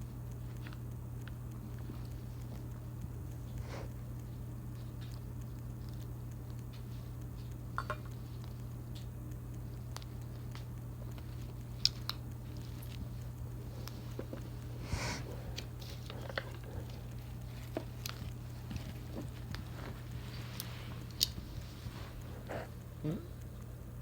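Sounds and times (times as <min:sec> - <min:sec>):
cockatoo chewing with clicks: 0:00.0 - 0:24.0.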